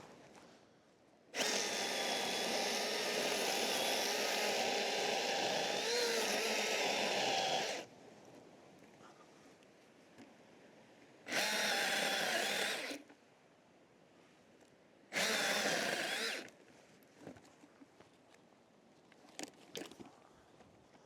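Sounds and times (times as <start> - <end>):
power tool running: 1.4 - 7.9, 11.3 - 13.0, 15.2 - 16.5.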